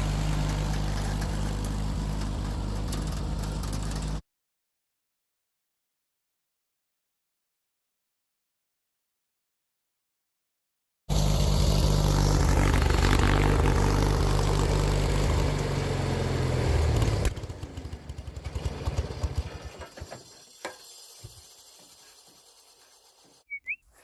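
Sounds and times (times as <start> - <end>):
garden tractor engine running: 0.0 - 4.2, 11.1 - 24.0.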